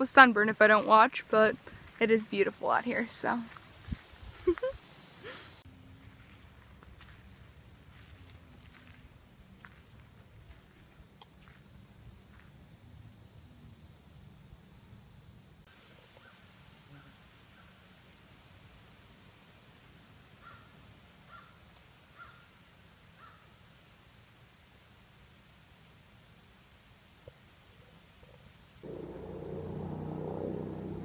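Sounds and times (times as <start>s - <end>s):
insects droning: 8.7s - 31.0s.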